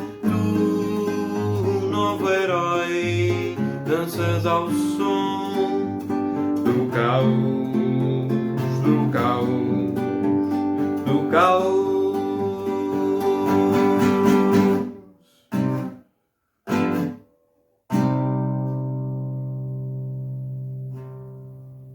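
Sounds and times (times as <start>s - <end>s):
acoustic guitar strumming chords: 0.0s - 16.0s, 16.7s - 17.3s, 17.9s - 21.9s.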